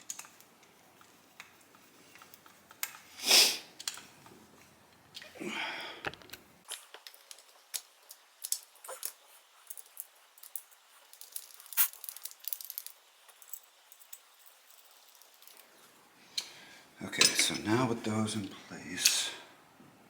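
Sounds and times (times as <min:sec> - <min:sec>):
small metal parts clinking: 0:06.7 - 0:15.7.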